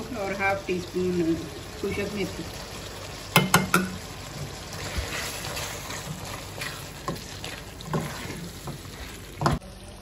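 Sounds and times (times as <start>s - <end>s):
meat sizzling in a metal pot: 0.0s - 10.0s
wooden spatula knocking a pot: 3.3s - 4.0s.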